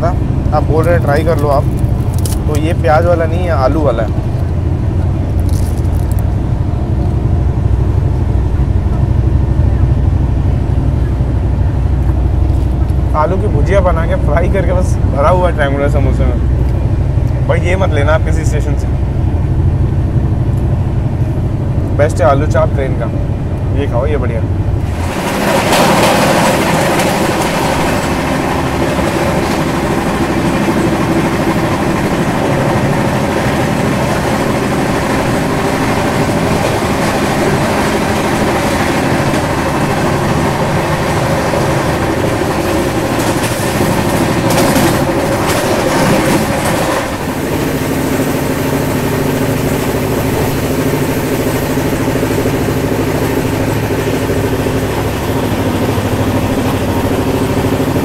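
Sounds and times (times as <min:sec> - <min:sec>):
train running inside coach: 0:00.0 - 0:58.0
coach rattling: 0:20.4 - 0:58.0.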